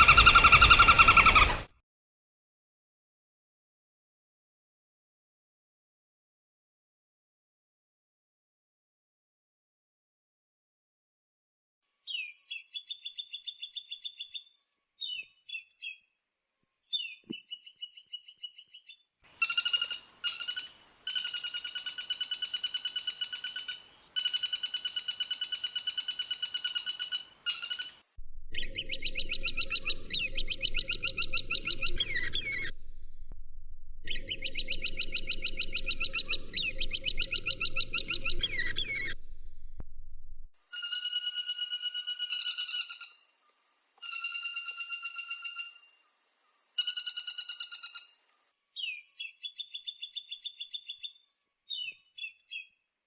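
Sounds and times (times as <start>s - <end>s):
woodpecker rattling trills: 0.0s - 1.7s, 19.4s - 33.3s, 34.0s - 39.8s, 40.8s - 43.3s
low steady hum: 28.2s - 40.6s.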